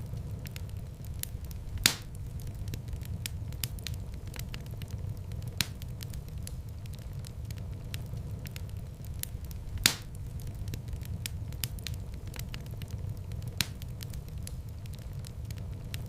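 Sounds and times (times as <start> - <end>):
fire crackling in a fireplace: 0.0 - 16.0
fire popping: 0.0 - 16.0.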